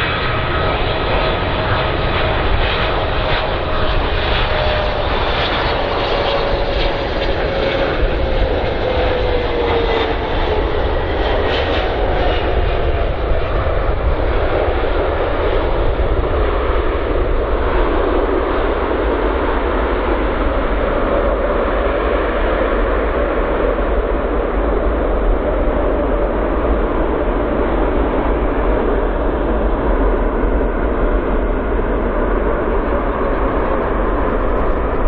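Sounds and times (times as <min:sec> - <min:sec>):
faint engine whine: 0:00.0 - 0:35.0
jet engines roaring: 0:00.0 - 0:35.0.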